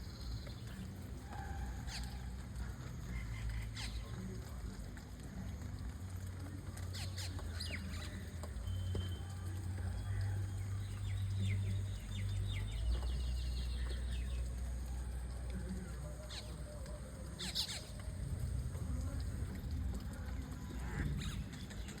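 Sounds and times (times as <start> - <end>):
bird harsh calls: 0.2 - 2.3, 17.3 - 18.1.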